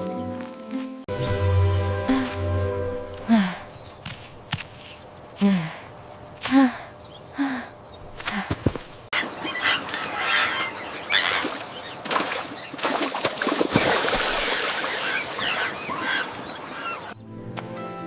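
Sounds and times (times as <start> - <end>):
birds calling and squawking: 5.9 - 13.0, 13.8 - 17.2.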